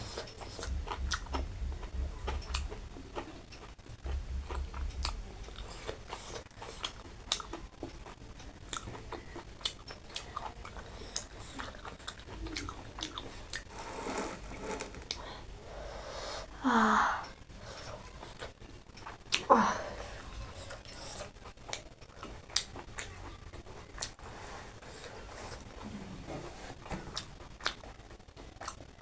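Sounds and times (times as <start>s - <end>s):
chewing and wet mouth clicks: 0.2s - 13.7s, 21.4s - 24.2s, 27.1s - 28.9s.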